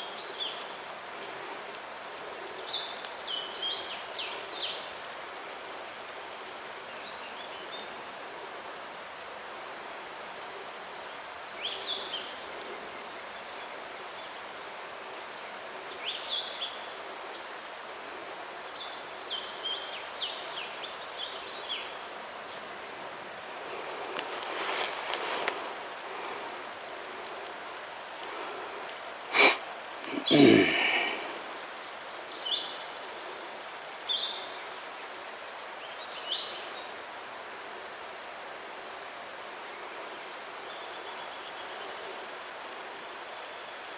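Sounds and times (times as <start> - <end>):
songbird singing: 0.0 - 9.2, 9.9 - 37.9, 38.9 - 43.9
steady outdoor hiss: 0.0 - 43.9
small bird singing: 32.3 - 34.8.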